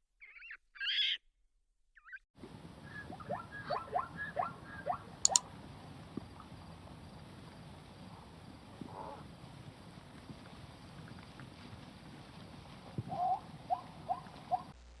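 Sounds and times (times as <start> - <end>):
small animal squeaking: 2.0 - 5.8
steady hiss: 2.4 - 14.9
sharp double click: 5.2 - 5.5.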